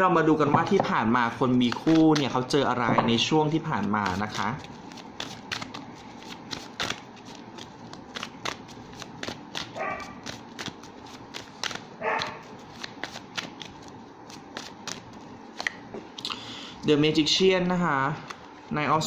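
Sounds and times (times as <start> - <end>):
cards shuffling clicks: 1.6 - 2.4, 3.6 - 15.8
dog barking: 9.8 - 10.2, 12.0 - 12.4.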